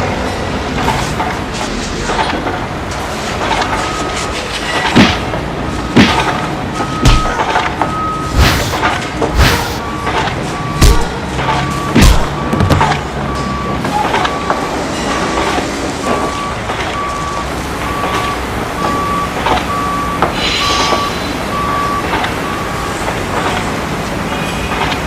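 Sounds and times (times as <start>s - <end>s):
traffic noise hum: 0.0s - 25.0s
electronic beeper beeping: 19.0s - 22.9s.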